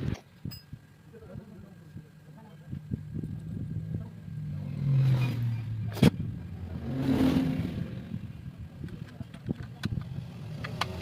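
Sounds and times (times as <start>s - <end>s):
motorcycle engine revving: 2.7s - 8.7s.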